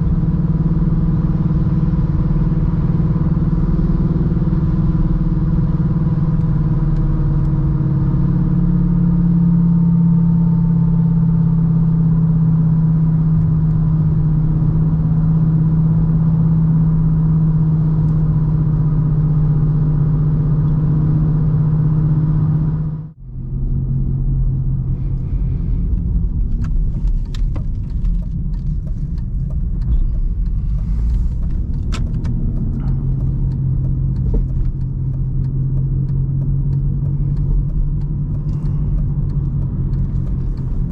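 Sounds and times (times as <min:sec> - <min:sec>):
car engine and road noise: 0:00.0 - 0:40.9
light clicks and rattles: 0:25.9 - 0:40.9.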